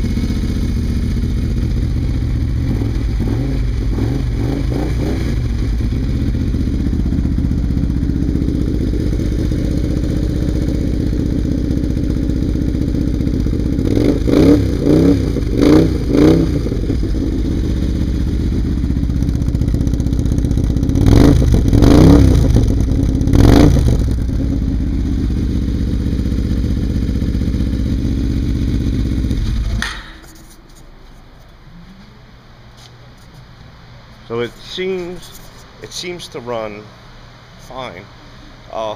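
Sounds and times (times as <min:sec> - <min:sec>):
engine idling with throttle blips: 0:00.0 - 0:29.9.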